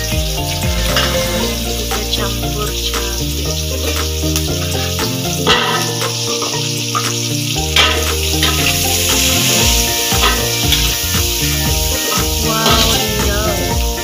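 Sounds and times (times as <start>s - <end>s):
background music: 0.0s - 14.0s
onions sizzling in a wok: 0.0s - 14.0s
spatula scraping a wok: 0.5s - 1.8s.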